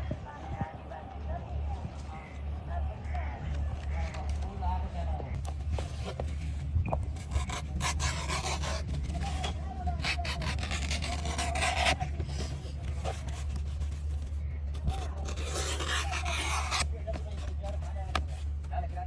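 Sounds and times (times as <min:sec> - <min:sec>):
tool rasping on hard surface: 0:07.2 - 0:13.5, 0:14.9 - 0:16.8.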